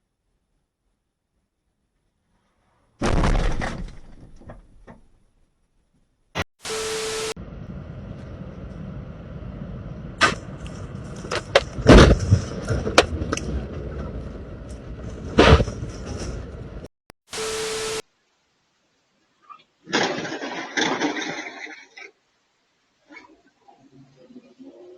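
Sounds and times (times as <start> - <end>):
sharp bangs or knocks: 3.0 - 5.0
static hiss with steady tone: 6.6 - 7.4, 17.3 - 19.9, 22.1 - 24.9
steady low rumble: 7.4 - 16.9.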